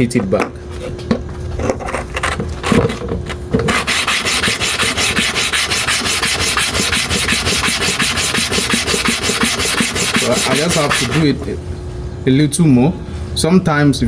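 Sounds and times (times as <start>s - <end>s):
blade scraping on sharpening stone: 3.7s - 11.3s.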